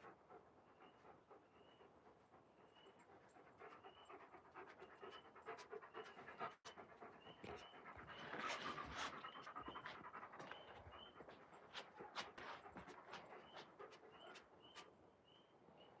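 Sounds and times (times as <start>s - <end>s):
dog panting: 0.0s - 14.9s.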